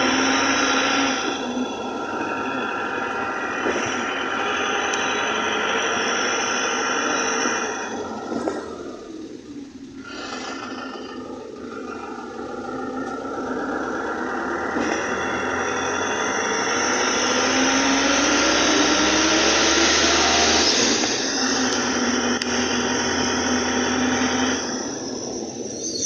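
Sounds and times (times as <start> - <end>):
vehicle engine speeding up: 0.0 - 25.8
road noise: 0.0 - 26.0.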